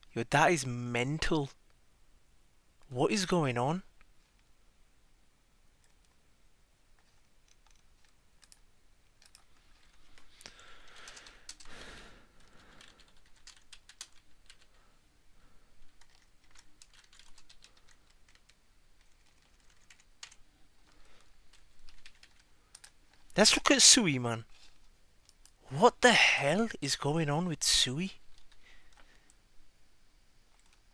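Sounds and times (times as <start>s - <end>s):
computer keyboard typing: 7.0s - 14.9s, 15.8s - 23.3s, 30.5s - 30.9s.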